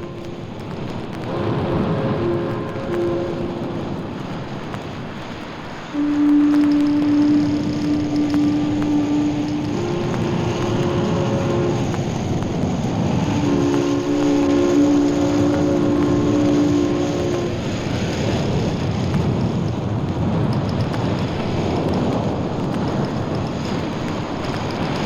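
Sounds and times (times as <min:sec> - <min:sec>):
ship's foghorn: 0:00.0 - 0:04.4, 0:05.9 - 0:17.9
sea and surf rushing: 0:00.0 - 0:25.0.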